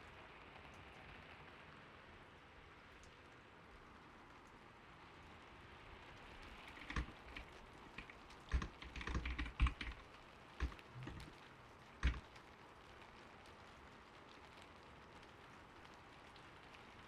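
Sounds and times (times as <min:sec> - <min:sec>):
gentle steady rain: 0:00.0 - 0:17.0
mechanical keyboard typing: 0:06.7 - 0:10.0, 0:10.6 - 0:11.3, 0:12.0 - 0:12.2.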